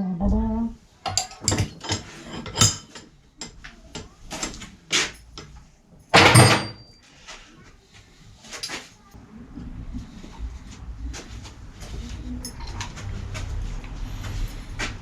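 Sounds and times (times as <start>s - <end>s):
knocks and clatter of handling: 1.0s - 7.1s
loud bang or rattle: 6.1s - 6.8s.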